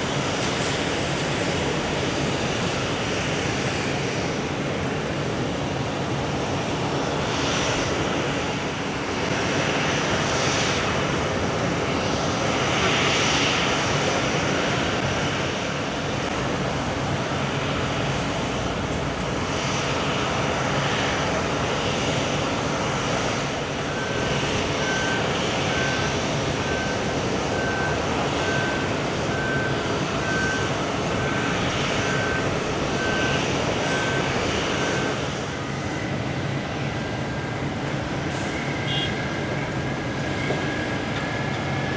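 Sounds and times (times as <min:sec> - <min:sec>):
jet engines running: 0:00.0 - 0:41.9
faint high beep: 0:38.5 - 0:39.1.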